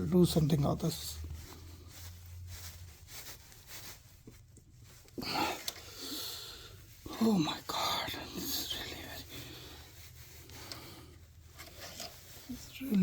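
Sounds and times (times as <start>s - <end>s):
strained breath: 5.2s - 6.9s, 9.3s - 11.3s
tool scraping in metal tube: 11.5s - 12.9s.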